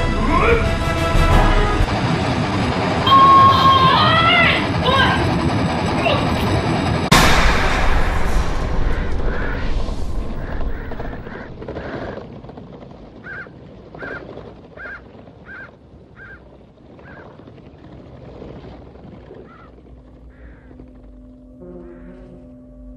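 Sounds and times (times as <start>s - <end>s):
loud rushing noise: 6.5s - 11.8s
bird cawing: 8.8s - 12.4s, 13.2s - 17.4s, 19.4s - 22.7s.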